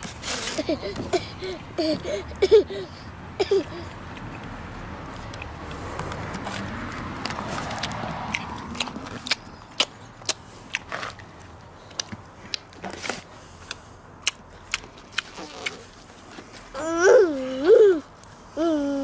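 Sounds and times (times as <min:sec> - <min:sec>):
man chewing food: 0:03.9 - 0:16.7
wet lip smacks: 0:15.1 - 0:15.8.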